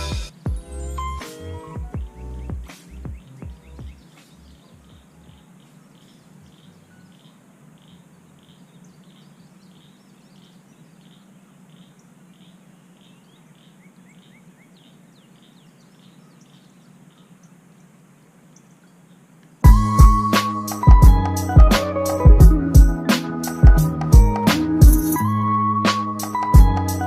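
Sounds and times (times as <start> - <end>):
bird chirps: 0.0 - 21.4.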